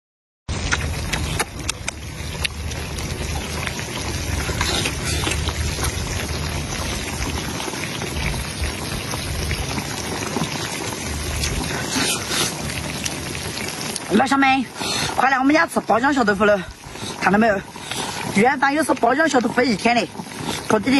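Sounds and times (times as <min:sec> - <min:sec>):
low hum: 0:00.5 - 0:13.8
tofu sizzling in hot oil: 0:00.5 - 0:20.9.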